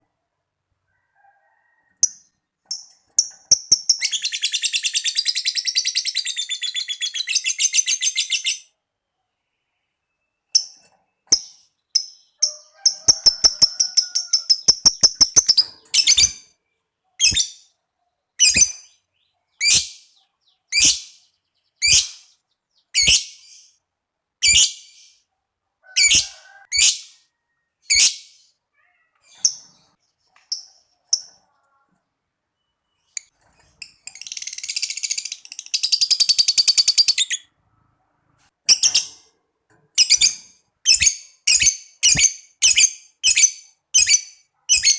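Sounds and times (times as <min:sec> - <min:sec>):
lovebird chirping and trilling: 0:02.0 - 0:08.8, 0:10.2 - 0:16.6, 0:17.2 - 0:17.8, 0:18.4 - 0:23.8, 0:24.4 - 0:25.2, 0:26.0 - 0:27.2, 0:27.8 - 0:28.5, 0:32.6 - 0:37.6, 0:38.7 - 0:39.3, 0:40.0 - 0:44.9.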